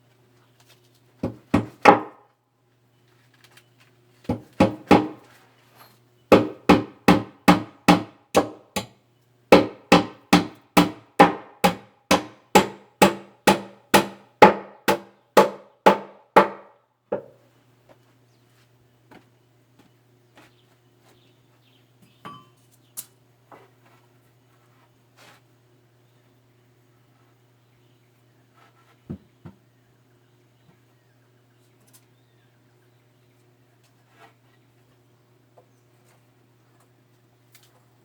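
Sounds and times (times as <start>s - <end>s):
hammer blows on wood: 6.3s - 8.9s, 9.5s - 17.3s.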